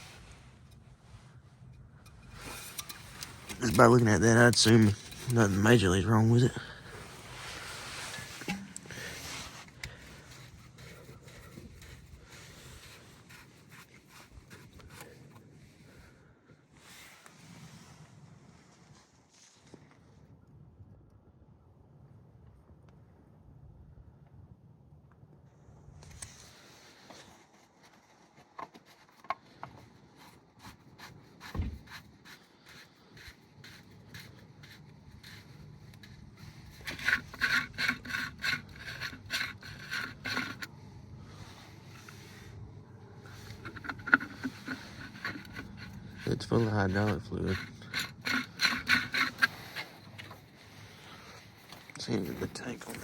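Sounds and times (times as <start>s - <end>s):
hand tool clicks and scrapes: 1.6s - 15.4s, 28.4s - 42.5s, 43.2s - 53.0s
hands handling small parts: 43.1s - 50.6s.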